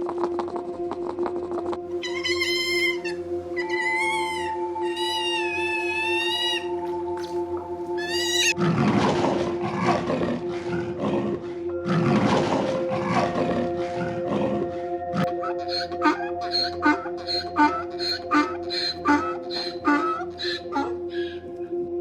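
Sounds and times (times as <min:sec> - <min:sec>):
background music with held tones: 0:00.0 - 0:22.0
animal harsh noisy calls: 0:02.0 - 0:07.4, 0:08.0 - 0:09.0, 0:15.3 - 0:21.4
cat meowing: 0:02.1 - 0:06.7.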